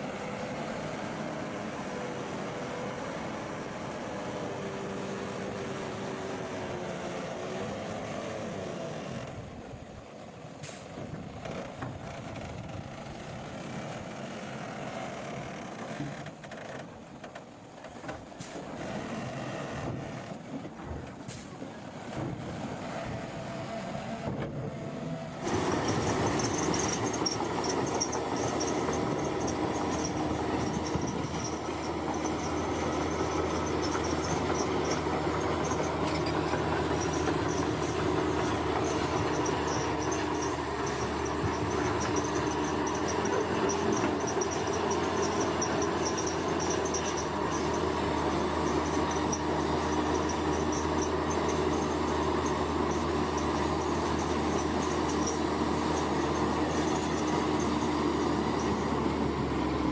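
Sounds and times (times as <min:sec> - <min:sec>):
bulldozer engine running: 0:18.7 - 0:59.9
crawler tracks clattering and squeaking: 0:25.4 - 0:59.8.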